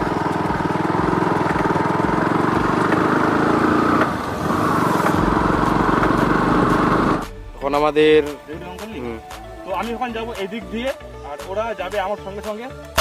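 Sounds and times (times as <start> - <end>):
motorcycle engine under load: 0.0 - 7.3.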